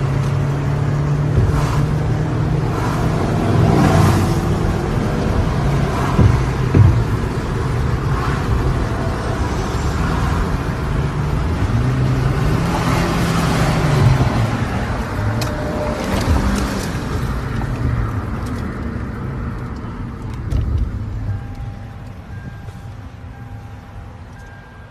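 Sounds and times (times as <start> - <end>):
car engine running: 0.0 - 24.5
road noise: 0.0 - 24.9.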